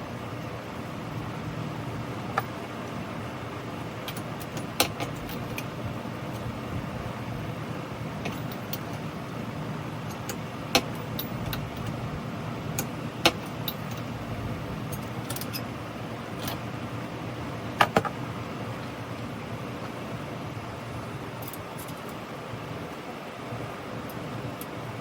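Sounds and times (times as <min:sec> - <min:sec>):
steady background hum: 0:00.0 - 0:25.0
hand tools clinking on metal: 0:04.0 - 0:05.7, 0:08.2 - 0:09.1, 0:10.0 - 0:12.0, 0:12.8 - 0:14.1, 0:14.9 - 0:15.7.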